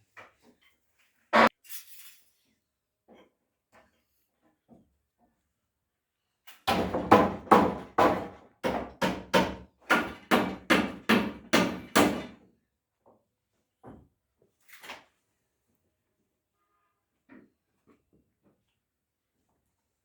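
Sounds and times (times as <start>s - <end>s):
hammer knocking on concrete formwork: 6.7s - 12.4s.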